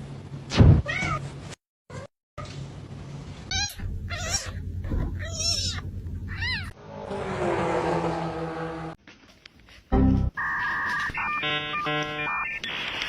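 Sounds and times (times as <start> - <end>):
cat meowing: 3.5 - 4.6, 5.2 - 6.7.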